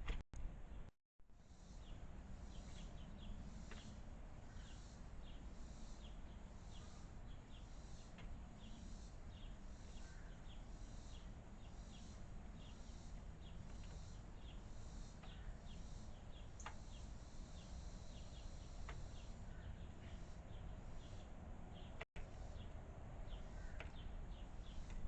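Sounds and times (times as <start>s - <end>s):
small bird chirping: 1.6s - 25.0s.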